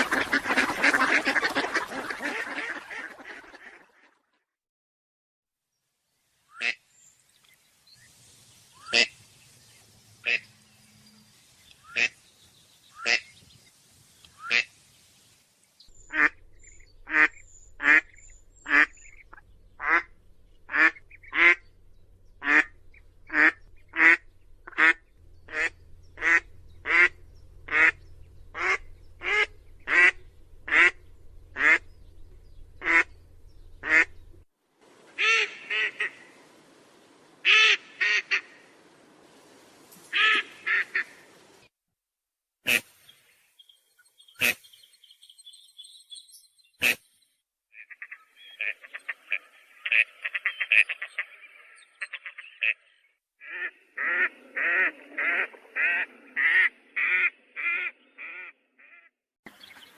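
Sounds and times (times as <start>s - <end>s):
duck quacking: 0.0s - 4.3s, 6.5s - 6.8s, 8.8s - 9.2s, 10.2s - 10.5s, 11.8s - 12.2s, 13.0s - 13.3s, 14.4s - 14.7s, 16.0s - 21.7s, 22.4s - 31.9s, 32.8s - 33.2s, 33.8s - 34.2s, 35.2s - 36.3s, 37.4s - 38.6s, 40.1s - 41.2s, 42.7s - 42.9s, 44.4s - 44.7s, 46.8s - 47.0s, 47.8s - 59.9s.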